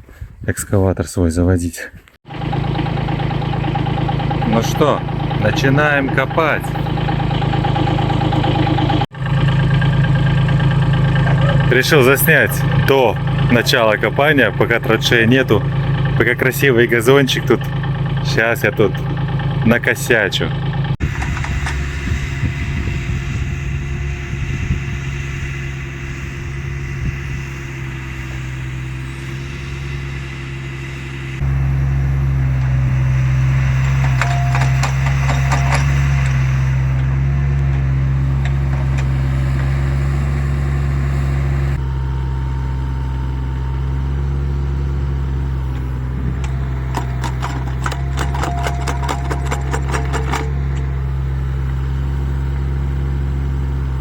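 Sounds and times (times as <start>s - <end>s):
excavator engine running: 2.2s - 54.0s
excavator bucket clanking: 2.4s - 9.0s, 21.0s - 22.1s, 31.4s - 41.6s, 45.5s - 52.7s.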